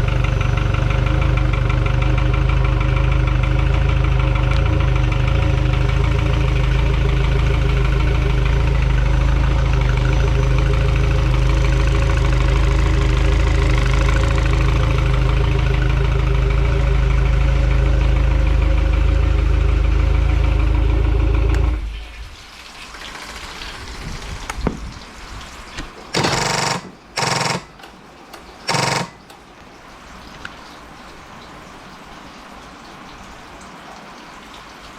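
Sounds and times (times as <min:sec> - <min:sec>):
outboard motor running: 0:00.0 - 0:22.0, 0:25.8 - 0:27.9, 0:28.7 - 0:29.3.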